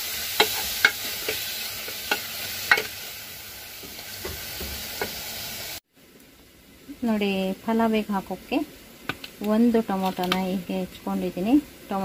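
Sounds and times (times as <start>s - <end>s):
spices sizzling in oil: 0.0s - 12.0s.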